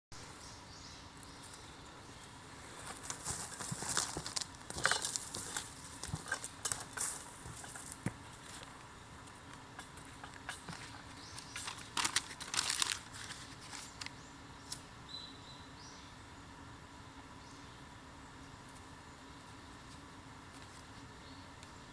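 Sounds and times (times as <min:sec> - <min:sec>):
dry bamboo crackling and snapping: 0:02.9 - 0:08.8, 0:09.5 - 0:14.8.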